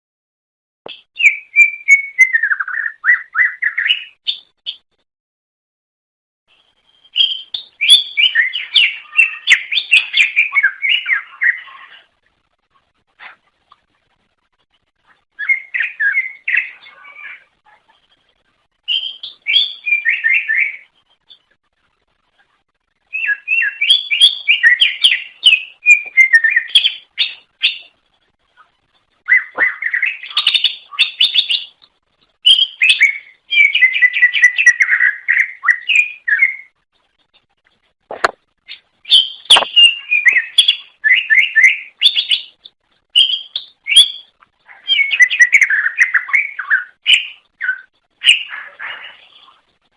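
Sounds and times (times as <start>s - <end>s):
bird singing rapid chirps: 0.9s - 4.8s, 6.5s - 12.2s, 15.3s - 21.6s, 23.0s - 28.0s, 28.6s - 31.8s, 32.4s - 36.8s, 38.6s - 49.6s.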